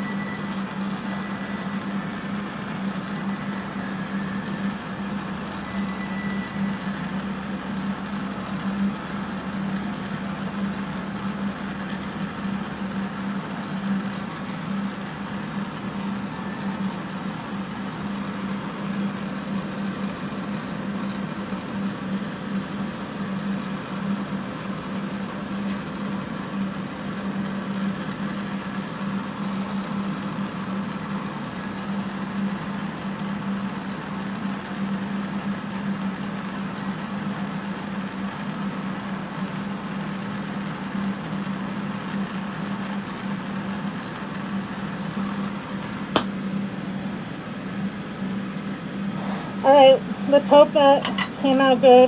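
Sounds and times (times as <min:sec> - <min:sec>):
electric fans humming: 0:00.0 - 0:52.0
torch hissing: 0:49.1 - 0:50.9.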